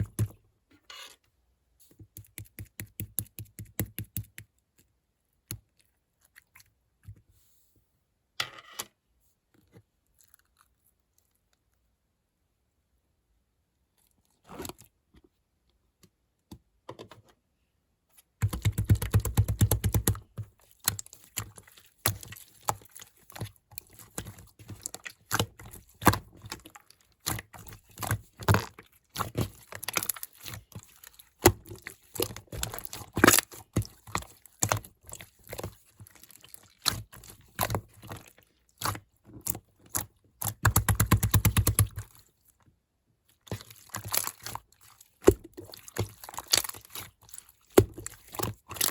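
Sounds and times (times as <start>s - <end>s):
slime squished by hand: 18.3s - 42.5s, 43.3s - 48.9s.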